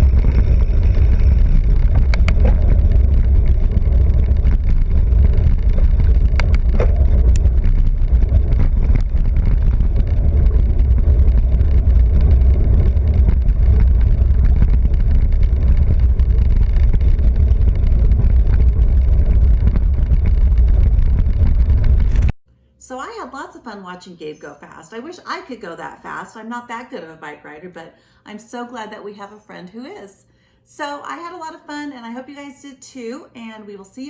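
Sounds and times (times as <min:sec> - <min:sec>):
sharp clicks: 0:00.0 - 0:12.2
wind buffeting microphone: 0:00.0 - 0:22.4.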